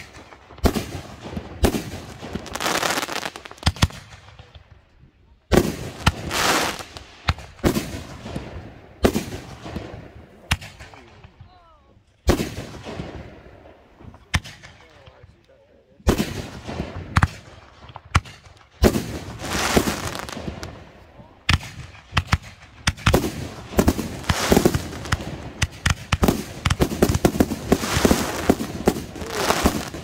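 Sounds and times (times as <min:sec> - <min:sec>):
fireworks hissing and crackling: 0:00.0 - 0:04.2, 0:05.5 - 0:10.6, 0:16.1 - 0:30.0
fireworks bangs: 0:00.0 - 0:04.7, 0:05.5 - 0:11.4, 0:12.2 - 0:15.2, 0:16.0 - 0:30.0.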